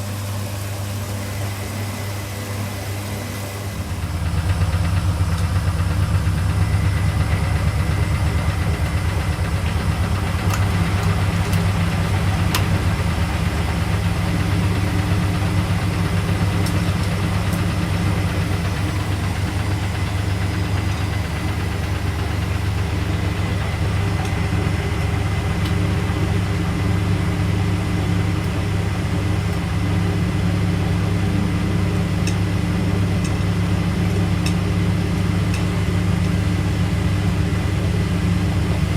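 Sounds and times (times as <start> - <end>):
washing machine running: 0.0 - 38.9.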